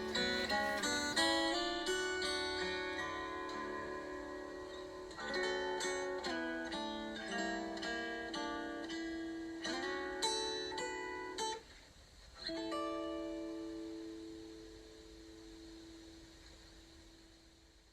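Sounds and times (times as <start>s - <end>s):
plucked string instrument melody: 0.0s - 11.6s.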